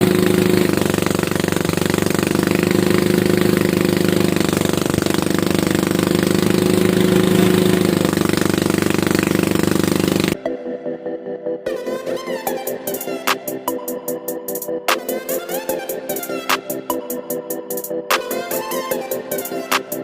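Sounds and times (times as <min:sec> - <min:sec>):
harvesting machine engine running: 0:00.0 - 0:10.4.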